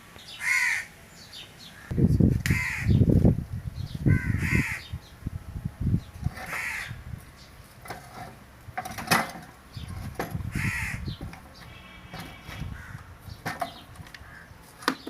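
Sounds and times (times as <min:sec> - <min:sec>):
crow cawing: 0:00.4 - 0:00.9, 0:02.5 - 0:03.0, 0:04.1 - 0:04.9, 0:06.5 - 0:07.0, 0:10.5 - 0:11.0, 0:11.8 - 0:13.1, 0:14.2 - 0:14.5.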